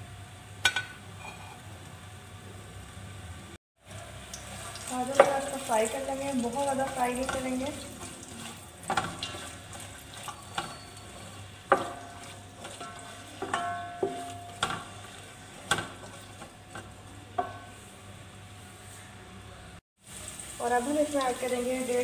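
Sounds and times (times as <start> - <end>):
carrots sizzling in oil: 0.0 - 18.4, 20.0 - 22.0
spatula knocking metal pot: 10.2 - 17.8.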